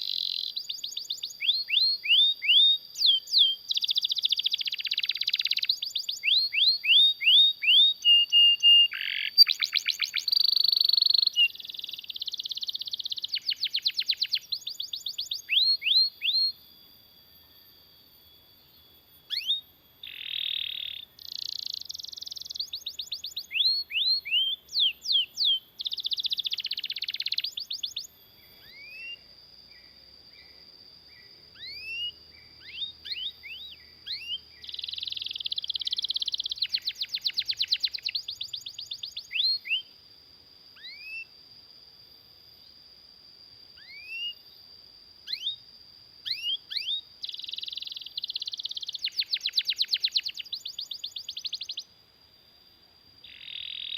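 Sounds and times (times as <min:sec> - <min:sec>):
canary singing: 0:00.0 - 0:16.6, 0:18.6 - 0:29.2, 0:31.2 - 0:39.8, 0:46.3 - 0:51.9, 0:53.2 - 0:53.9.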